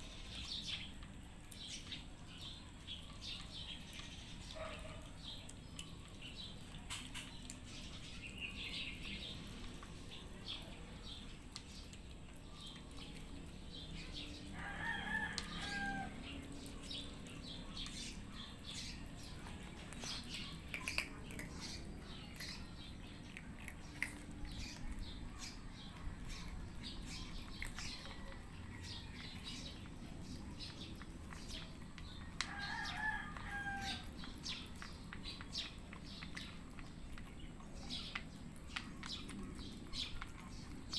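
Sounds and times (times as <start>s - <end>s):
cats crunching food: 0.0s - 40.9s
rooster crowing: 14.5s - 16.3s, 32.4s - 34.1s.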